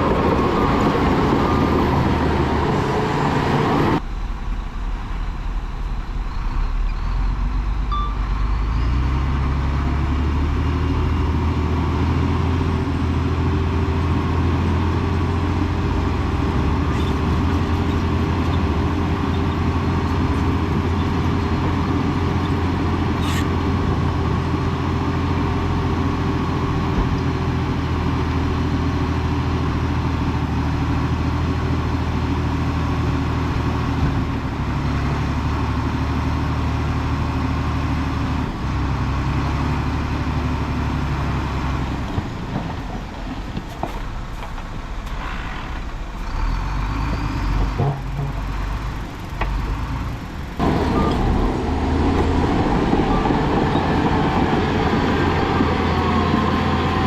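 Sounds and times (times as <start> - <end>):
heavy diesel engine running: 0.0 - 57.0
knocks and clanks: 50.6 - 54.5.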